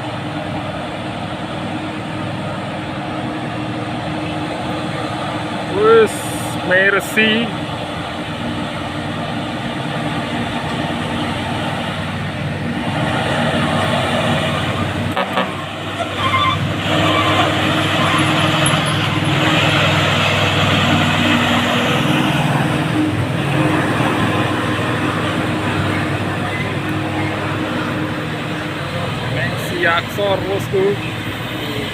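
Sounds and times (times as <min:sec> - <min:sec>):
diesel truck engines labouring: 0:00.0 - 0:31.9
truck horn toot: 0:15.1 - 0:19.2.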